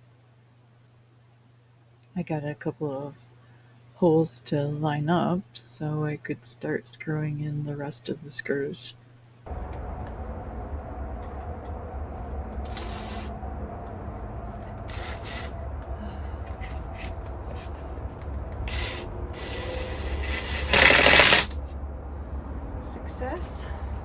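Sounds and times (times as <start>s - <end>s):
steady low rumble: 9.4s - 24.0s
screws driven into wood: 18.7s - 21.6s.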